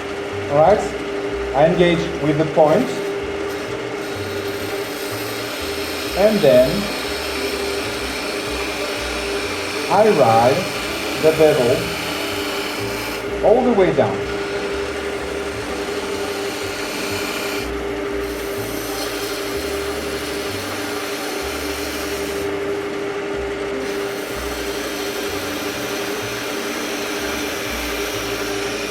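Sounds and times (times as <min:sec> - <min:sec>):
chisel scraping spinning wood: 0:00.0 - 0:28.9
wood lathe motor hum: 0:00.0 - 0:28.9.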